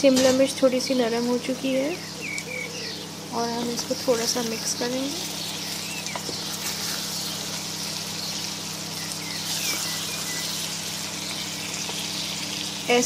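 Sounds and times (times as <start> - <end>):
vegetables sizzling in a pot: 3.0 - 13.0.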